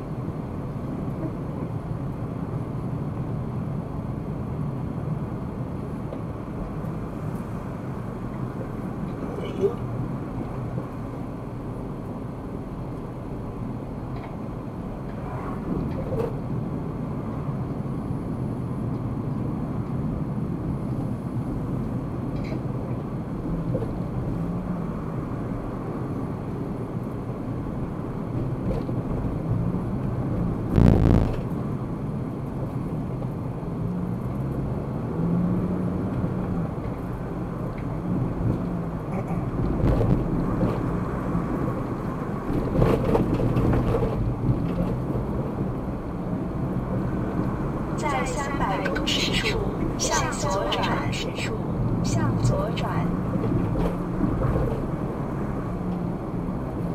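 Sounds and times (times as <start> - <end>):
car engine and road noise: 0.0 - 56.9.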